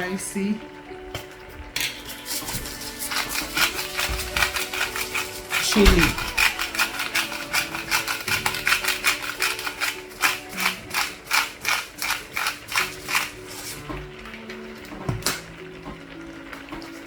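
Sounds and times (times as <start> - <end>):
kitchen utensil clicking: 1.8 - 13.8.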